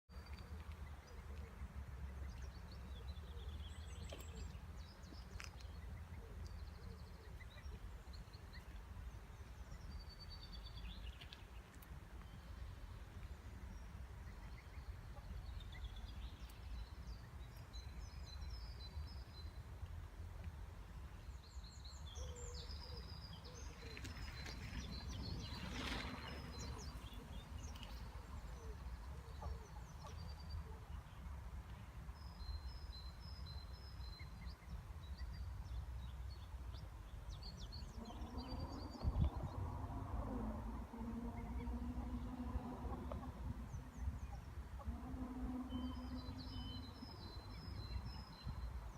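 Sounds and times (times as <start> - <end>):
steady low rumble: 36.5 - 48.9.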